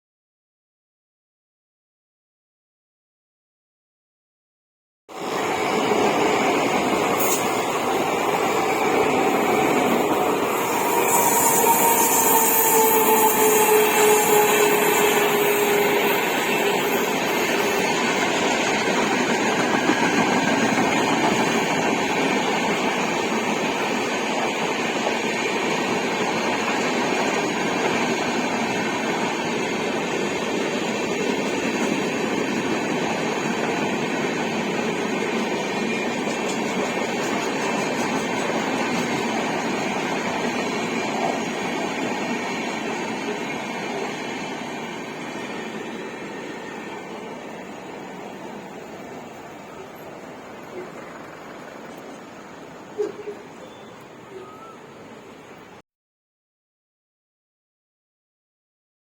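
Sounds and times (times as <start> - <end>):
train wheels rumbling on rails: 5.2 - 55.4.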